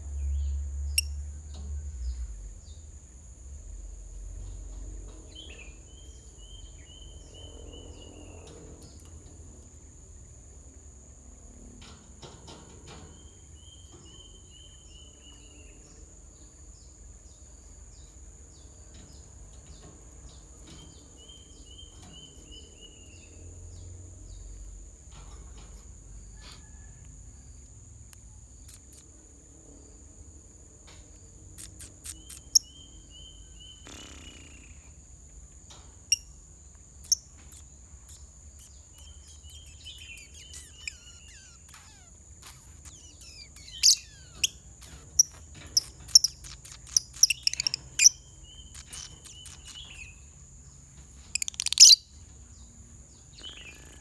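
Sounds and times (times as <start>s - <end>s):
high-pitched insect buzz: 31.6s - 32.7s, 37.0s - 50.1s
loud sharp lovebird chirps: 31.6s - 35.0s, 37.0s - 50.2s, 51.3s - 52.2s
bird song falling in pitch: 38.9s - 46.4s.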